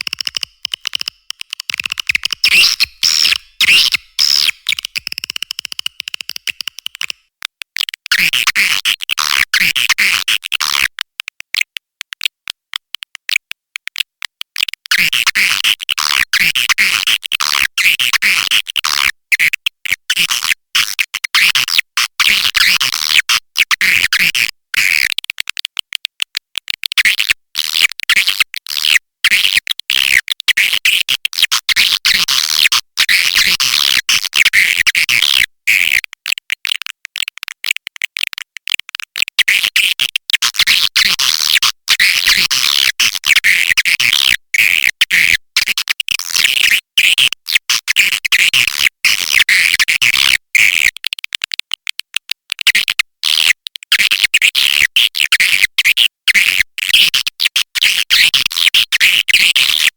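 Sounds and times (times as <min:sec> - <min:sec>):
swiftlets twittering and clicking: 0:00.0 - 0:07.2.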